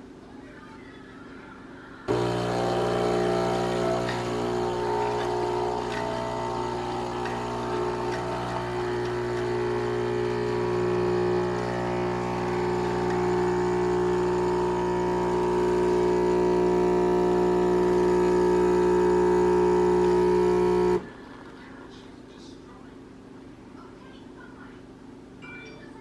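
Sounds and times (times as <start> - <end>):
espresso machine pump humming: 2.1 - 21.1.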